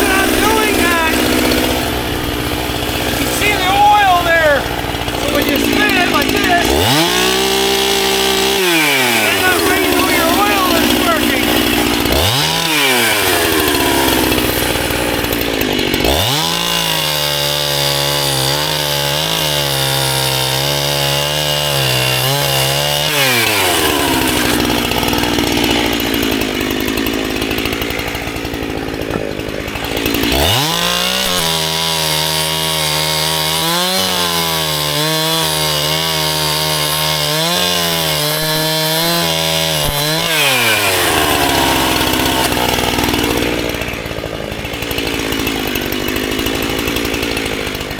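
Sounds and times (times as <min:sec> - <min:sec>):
chainsaw cutting wood: 0:00.0 - 0:47.9.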